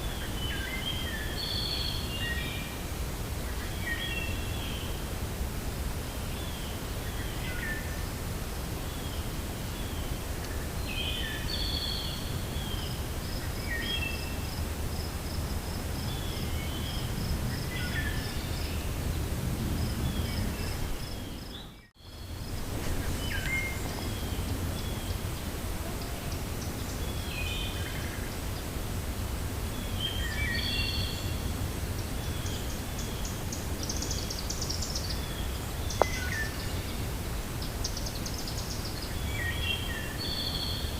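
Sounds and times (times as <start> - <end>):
wind through forest: 0.0 - 40.9
small birds chirping: 8.8 - 28.8, 29.6 - 40.9.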